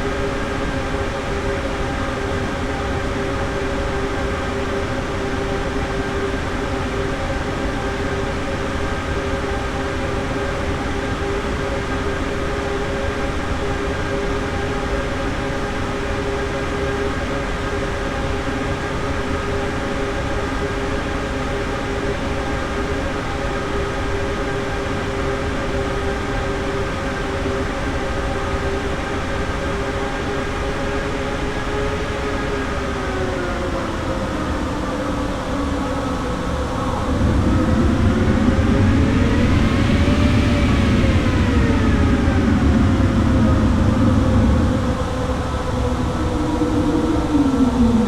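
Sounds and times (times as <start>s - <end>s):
jet engines whining: 22.0s - 48.0s
loud low rumble: 35.4s - 47.9s.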